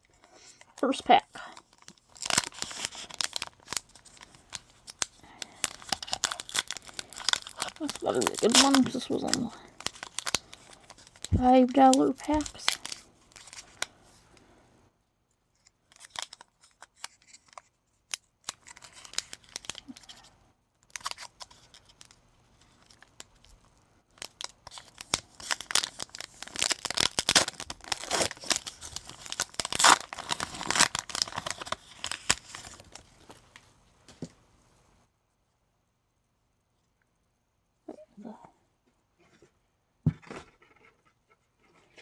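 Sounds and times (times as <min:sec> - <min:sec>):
foil wrapper tearing and crinkling: 0:01.6 - 0:13.9, 0:15.9 - 0:23.5, 0:24.1 - 0:33.1.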